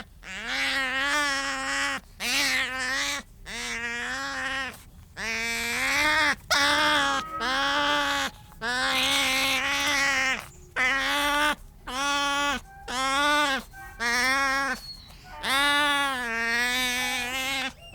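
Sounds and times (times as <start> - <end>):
animal calling: 0.2 - 17.9.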